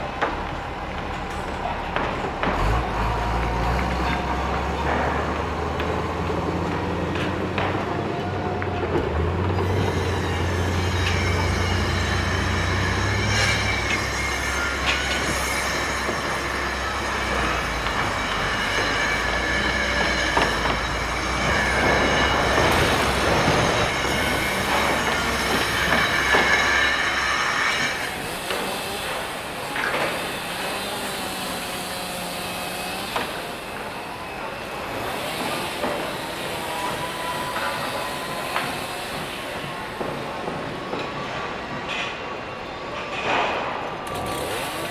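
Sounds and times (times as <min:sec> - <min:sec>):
heavy machine low rumble: 0:00.0 - 0:37.1
metal grinding on metal: 0:09.6 - 0:40.0.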